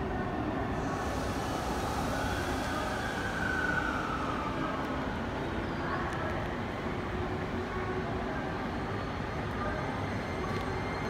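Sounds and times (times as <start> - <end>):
electric train rumble: 0.0 - 11.0.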